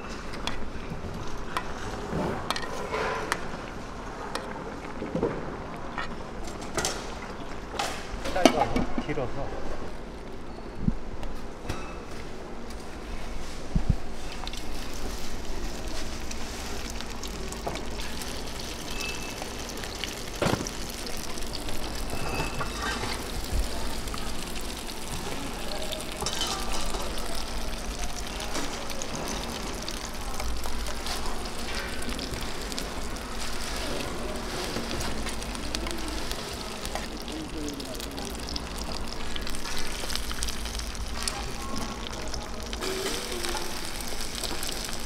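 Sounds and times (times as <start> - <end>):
food sizzling in oil: 14.1 - 45.0.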